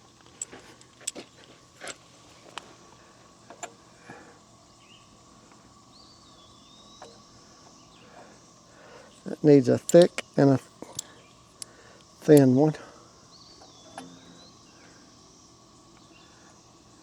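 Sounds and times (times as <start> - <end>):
faint bird chirps: 5.9 - 9.2, 13.0 - 16.8
steel washers clicking: 9.8 - 12.6.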